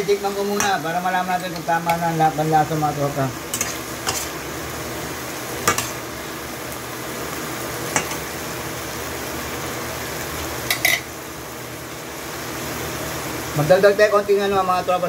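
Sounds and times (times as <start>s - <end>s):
chicken and onions sizzling: 0.0s - 15.0s
metal spatula clinking on pan: 7.9s - 8.2s.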